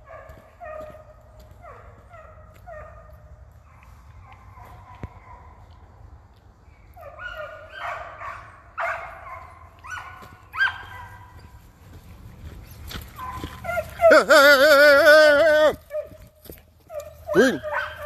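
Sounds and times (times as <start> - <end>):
hounds baying: 0.0 - 5.7, 6.9 - 18.0
long wavering dog howl: 13.2 - 16.1.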